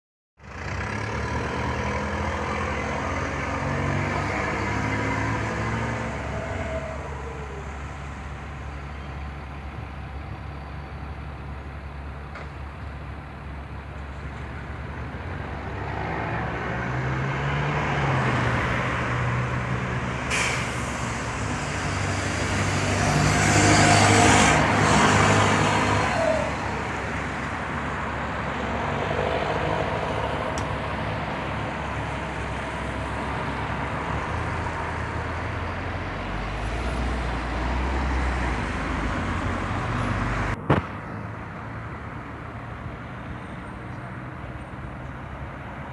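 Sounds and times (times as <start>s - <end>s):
bus diesel engine running: 0.4s - 15.8s, 18.1s - 45.9s
sharp air hisses: 20.3s - 21.3s.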